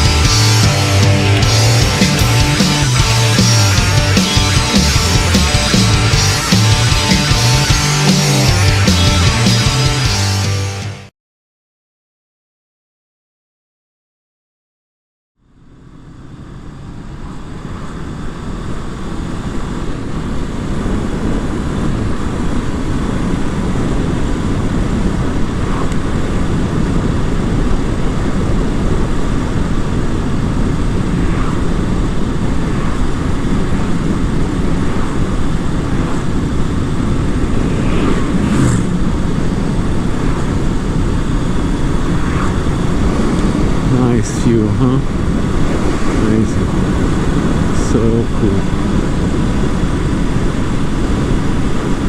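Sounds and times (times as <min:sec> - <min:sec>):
motorcycle engine: 0:00.0 - 0:11.0, 0:15.4 - 0:26.8, 0:30.7 - 0:50.1
wind rush: 0:17.4 - 0:52.0.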